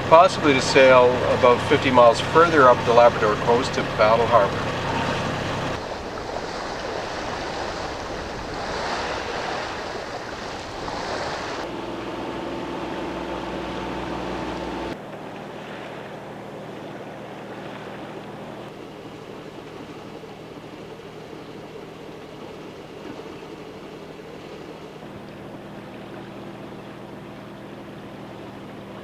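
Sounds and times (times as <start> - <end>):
sea water rushing past hull: 0.0 - 29.0
steady hum: 0.0 - 29.0
wind noise on microphone: 5.7 - 11.7.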